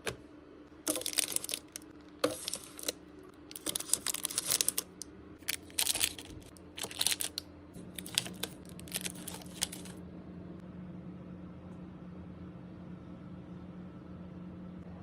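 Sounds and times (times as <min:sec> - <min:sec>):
low steady hum: 0:00.0 - 0:15.0
packaging crinkling: 0:00.9 - 0:10.0.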